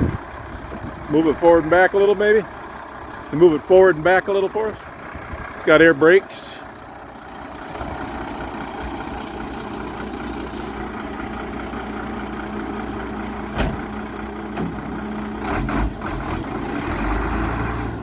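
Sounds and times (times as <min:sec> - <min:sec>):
diesel truck engine running: 0:00.0 - 0:18.0
sharp clunk: 0:13.5 - 0:13.9.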